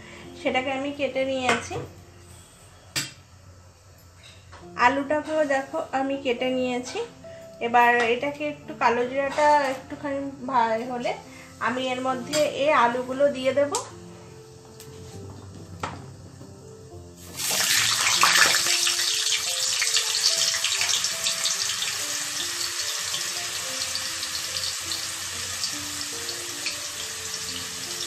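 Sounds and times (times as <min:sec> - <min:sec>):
potatoes sizzling in hot oil: 0:17.2 - 0:28.0.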